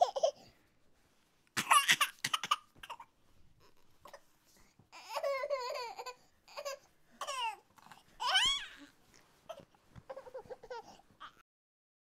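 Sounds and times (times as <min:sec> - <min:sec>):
child squealing: 0:08.2 - 0:08.8.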